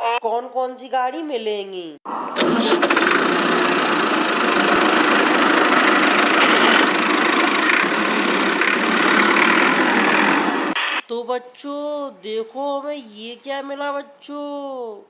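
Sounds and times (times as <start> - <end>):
tractor engine chugging: 2.4 - 10.8.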